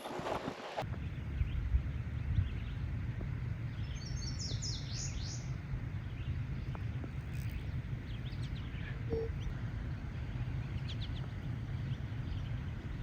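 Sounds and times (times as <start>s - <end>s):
low rumble: 0.8s - 13.0s
bird chirps: 3.7s - 9.5s
short tone: 9.0s - 9.4s.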